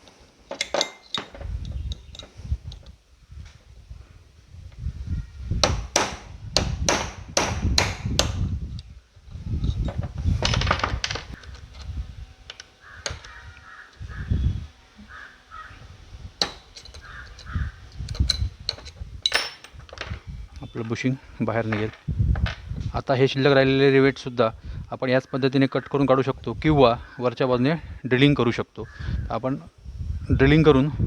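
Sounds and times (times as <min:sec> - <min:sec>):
metal scraping: 0:00.0 - 0:02.8, 0:09.4 - 0:22.7
screwdriver striking metal: 0:00.5 - 0:02.8, 0:09.6 - 0:13.4, 0:16.4 - 0:20.2.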